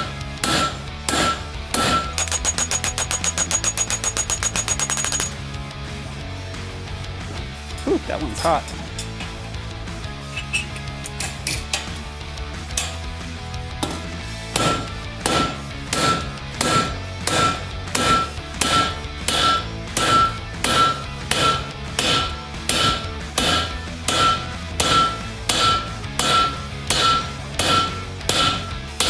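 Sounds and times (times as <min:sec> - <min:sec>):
hammer blows on metal: 0:00.4 - 0:05.4, 0:14.6 - 0:29.0.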